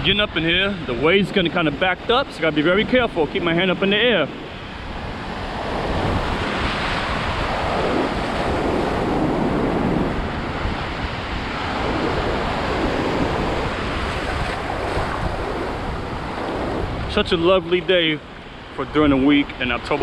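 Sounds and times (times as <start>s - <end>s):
ocean surf breaking: 0.0s - 20.0s
wind buffeting microphone: 0.0s - 20.0s.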